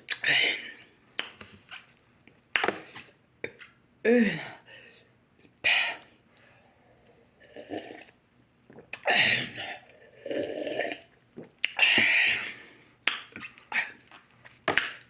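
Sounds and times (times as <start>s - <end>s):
sharp mouth clicks: 13.0s - 14.2s.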